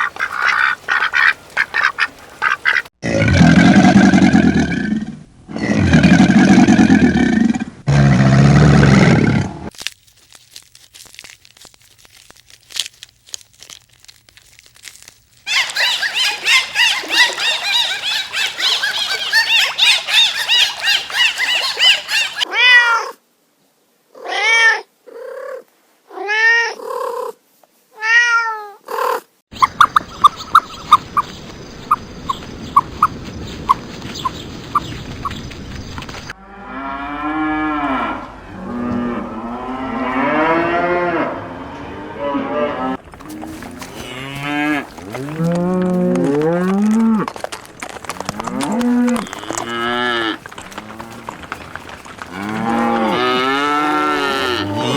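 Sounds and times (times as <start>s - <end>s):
high chirping and squeaking: 15.5s - 22.5s
low drawn-out animal calls: 15.5s - 22.5s, 40.2s - 54.9s.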